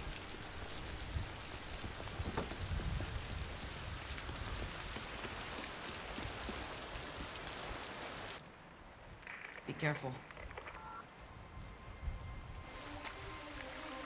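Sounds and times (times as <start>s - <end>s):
heavy rain pattering: 0.0s - 8.4s.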